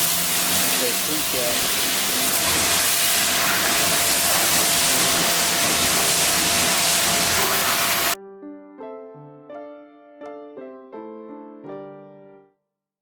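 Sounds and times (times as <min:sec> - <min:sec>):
pressure washer spraying water: 0:00.0 - 0:08.2.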